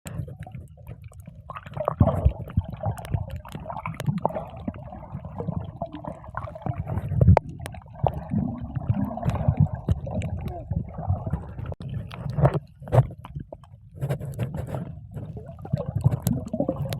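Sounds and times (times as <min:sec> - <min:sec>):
water sloshing and splashing: 0:00.1 - 0:16.9.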